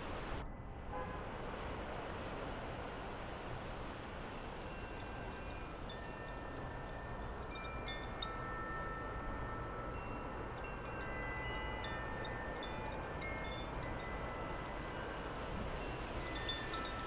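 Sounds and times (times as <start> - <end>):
wind chimes ringing: 4.3 - 17.0.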